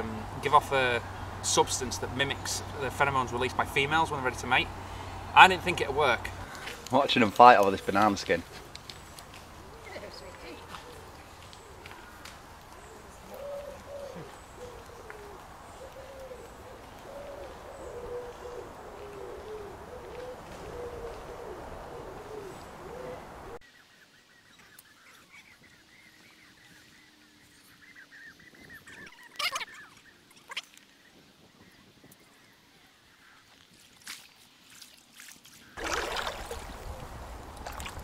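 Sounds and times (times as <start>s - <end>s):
bird hooting: 9.6s - 23.6s.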